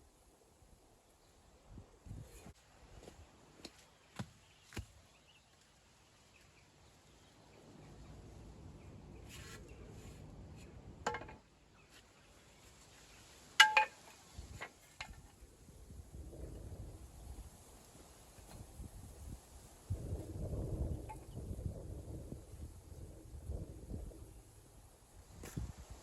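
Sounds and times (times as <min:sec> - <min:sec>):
stone knocking against stone: 0:11.0 - 0:11.4, 0:13.6 - 0:14.0.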